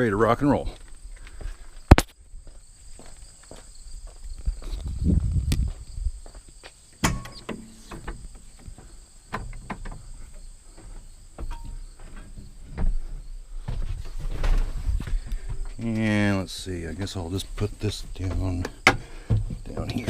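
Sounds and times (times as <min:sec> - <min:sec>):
footsteps: 0:00.6 - 0:20.0
knocks and clunks of handling: 0:07.0 - 0:16.1, 0:17.5 - 0:20.0.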